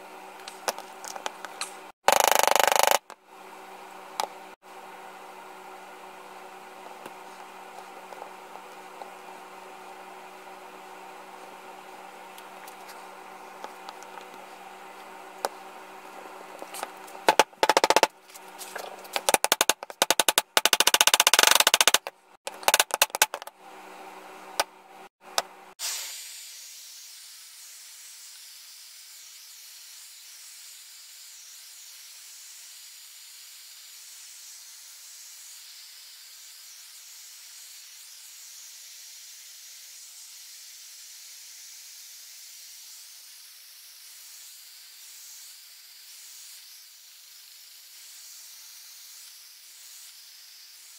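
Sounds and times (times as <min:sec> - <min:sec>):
steady high hiss: 0:25.8 - 0:50.9.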